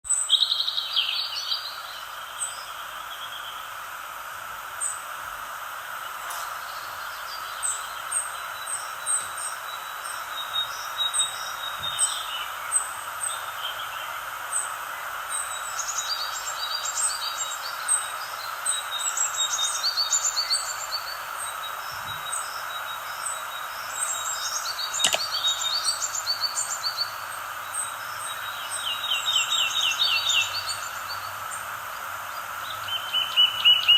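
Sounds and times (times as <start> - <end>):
steady background hiss: 0.1 - 33.9
birds chirping and singing: 18.3 - 31.6.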